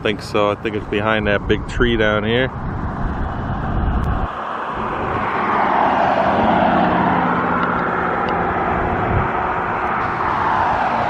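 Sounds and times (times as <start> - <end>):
passing road traffic: 0.0 - 11.0
low rumble: 0.8 - 5.6.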